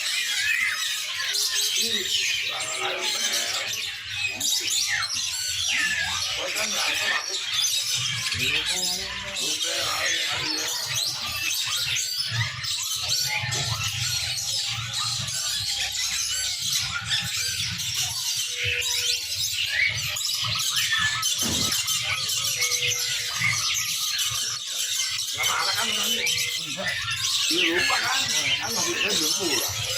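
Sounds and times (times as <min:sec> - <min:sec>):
small birds chirping: 0:00.0 - 0:29.9.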